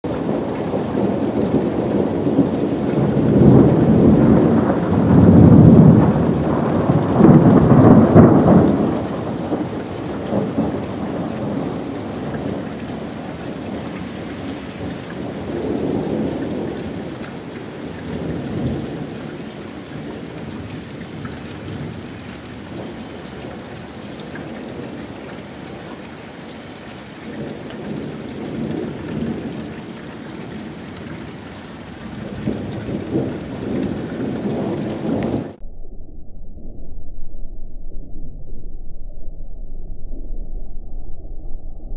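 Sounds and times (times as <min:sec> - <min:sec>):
steady rain: 0:00.0 - 0:35.6
thunder rolling rumble: 0:00.1 - 0:41.9.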